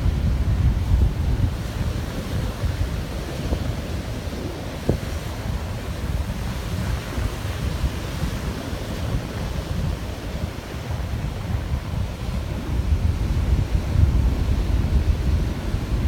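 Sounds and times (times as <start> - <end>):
surf on a beach: 0.0 - 16.0
wind rumbling on microphone: 0.0 - 16.0.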